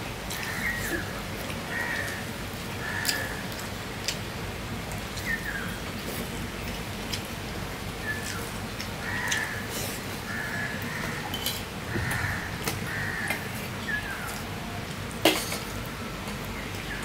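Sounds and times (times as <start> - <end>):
chewing with wet mouth clicks: 3.0 - 4.2.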